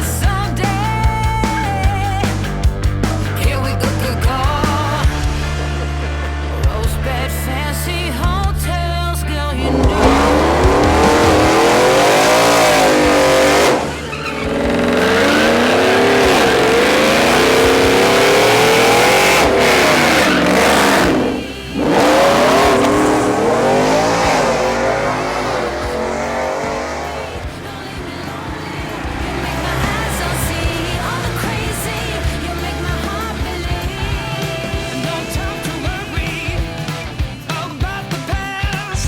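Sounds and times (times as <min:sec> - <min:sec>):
tire noise: 0:00.0 - 0:39.0
car engine revving hard: 0:09.5 - 0:37.6.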